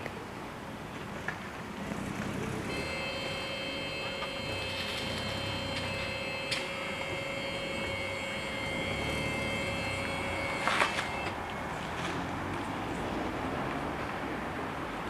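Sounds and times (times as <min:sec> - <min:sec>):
level crossing warning bells: 0:02.6 - 0:12.1.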